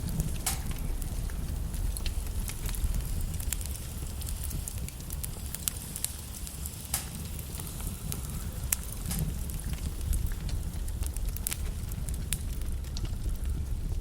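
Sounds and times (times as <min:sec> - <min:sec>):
logs crackling in fireplace: 0:00.0 - 0:14.0.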